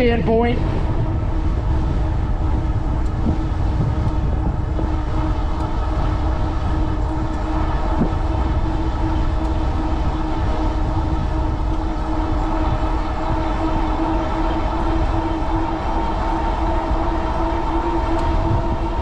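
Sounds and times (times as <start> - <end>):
electric hub motor whine: 0.0 - 19.0
wind buffeting microphone: 0.0 - 19.0.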